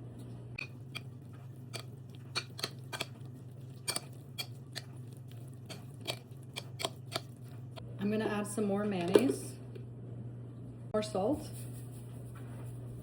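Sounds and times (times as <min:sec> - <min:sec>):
steady low hum: 0:00.0 - 0:13.0
spoon scraping a bowl: 0:00.6 - 0:07.5.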